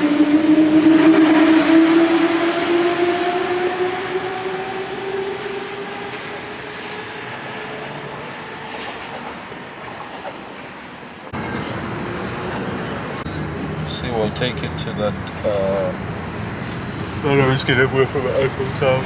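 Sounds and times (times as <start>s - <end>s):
traction motor whine: 0.0s - 8.4s
train ride rumble: 0.0s - 19.0s.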